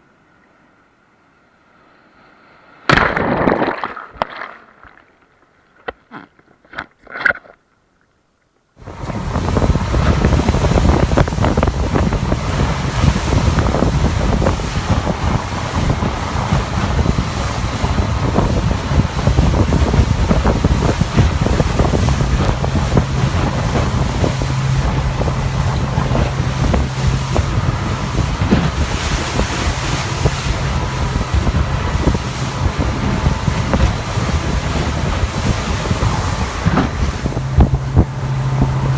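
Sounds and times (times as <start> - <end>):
low engine drone: 8.8 - 38.9
wind buffeting microphone: 8.8 - 38.9.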